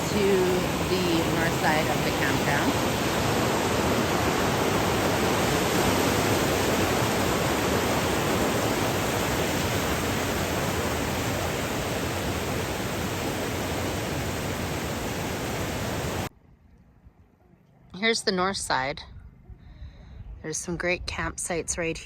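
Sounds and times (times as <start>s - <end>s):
river water over rapids: 0.0s - 16.3s.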